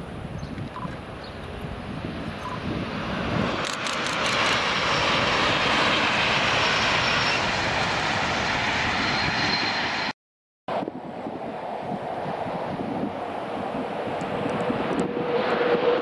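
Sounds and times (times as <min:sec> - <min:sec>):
high-speed train rushing past: 0:01.0 - 0:16.0.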